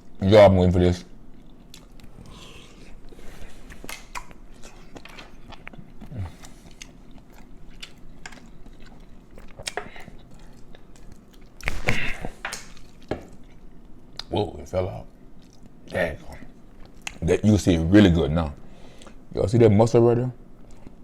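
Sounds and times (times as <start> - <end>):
wet chewing sounds: 1.3 - 14.3, 15.1 - 17.2, 20.6 - 21.0.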